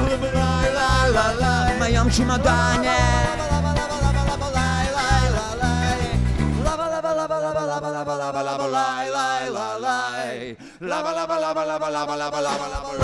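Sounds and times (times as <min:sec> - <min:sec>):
bass and drum groove: 0:00.0 - 0:06.8
held guitar and melody notes: 0:00.0 - 0:06.8.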